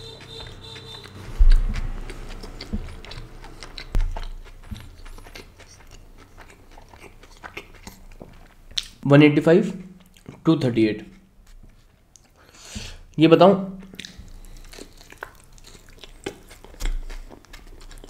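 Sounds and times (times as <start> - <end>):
chewing food: 0.0 - 9.0, 9.7 - 13.1, 13.8 - 18.0
wet mouth clicks: 0.3 - 9.0, 13.8 - 18.0
low thumps: 0.5 - 5.4.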